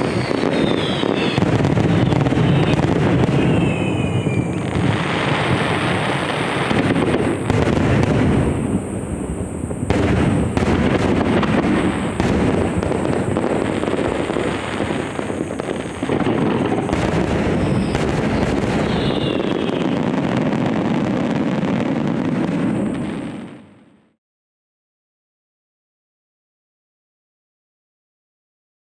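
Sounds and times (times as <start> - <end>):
fireworks shells bursting: 0.0 - 21.6
sharp firework bangs: 0.0 - 23.8.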